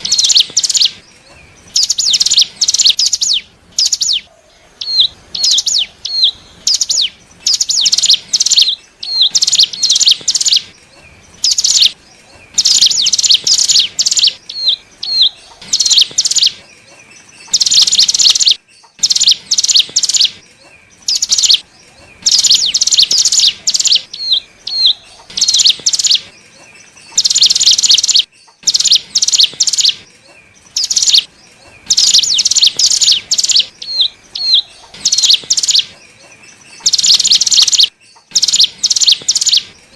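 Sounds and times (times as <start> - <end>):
downward-hooked bird whistles: 0.0 - 1.0, 12.6 - 16.6, 22.2 - 26.3, 31.9 - 35.9, 36.9 - 39.7
bird trilling: 0.0 - 39.8.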